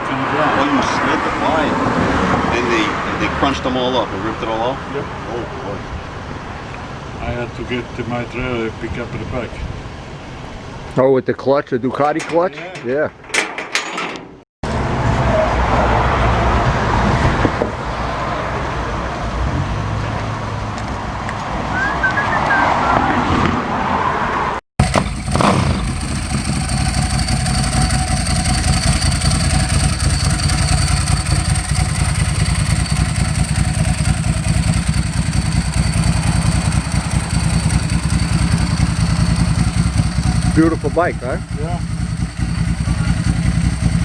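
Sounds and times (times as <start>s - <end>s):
outdoor noise: 0.0s - 44.0s
motorcycle engine running: 24.8s - 44.0s.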